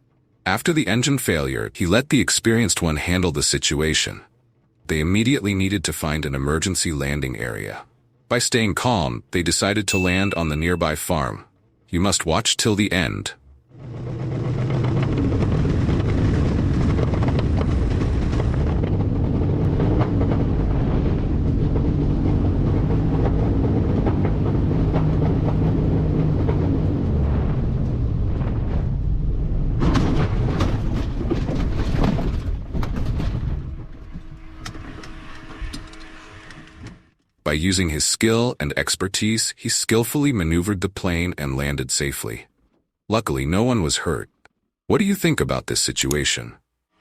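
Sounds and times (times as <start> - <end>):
airflow rumble inside small plane: 13.5 - 37.2
knocks and rattles: 13.7 - 21.0, 29.8 - 36.9.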